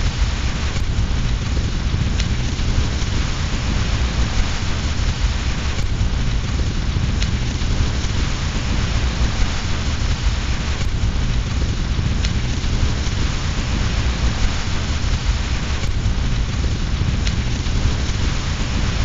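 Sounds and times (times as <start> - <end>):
fireplace fire crackling: 0.0 - 19.0
heavy low rumble: 0.0 - 19.0
steady rain: 0.0 - 19.0.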